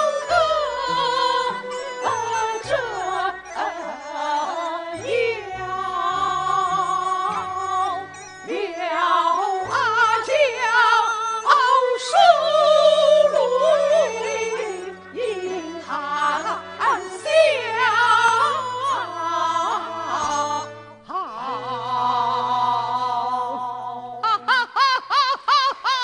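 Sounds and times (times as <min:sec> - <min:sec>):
instrumental accompaniment: 0:00.0 - 0:24.5
opera singing with wide vibrato: 0:00.0 - 0:26.0.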